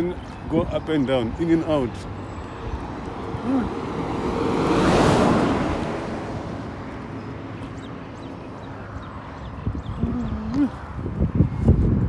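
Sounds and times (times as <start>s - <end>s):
vehicle passing by: 1.4s - 10.9s.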